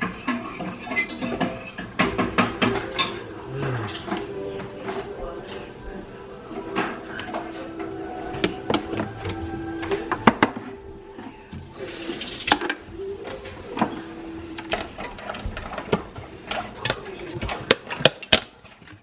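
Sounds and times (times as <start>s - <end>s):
clinks and knocks: 0.0s - 3.3s.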